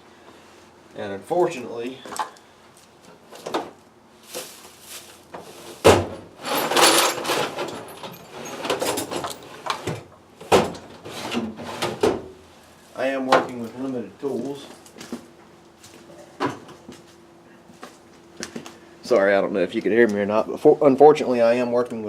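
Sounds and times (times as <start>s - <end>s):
rattling: 6.4s - 9.5s
hand tools clicking and clattering: 6.4s - 9.9s.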